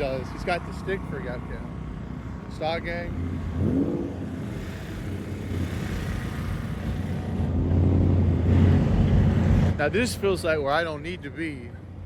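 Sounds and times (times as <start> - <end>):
car engine revving: 2.8 - 9.9.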